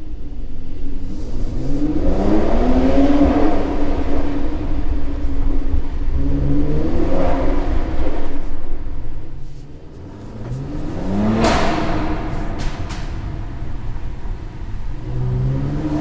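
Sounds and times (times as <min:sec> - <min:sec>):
car engine revving: 0:00.2 - 0:16.0
sharp exhaust crack: 0:00.7 - 0:16.0.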